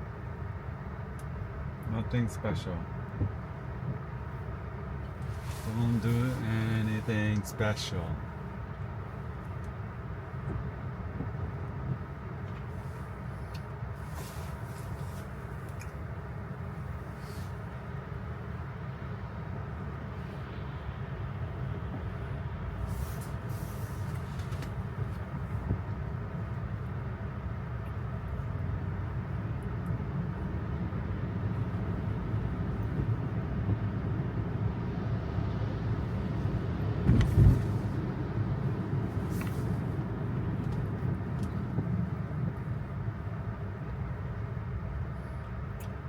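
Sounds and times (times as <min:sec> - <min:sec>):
brief hisses: 0:14.0 - 0:15.3, 0:22.8 - 0:24.6
tyres rumbling on wet road: 0:21.8 - 0:43.4
thump: 0:37.0 - 0:37.7.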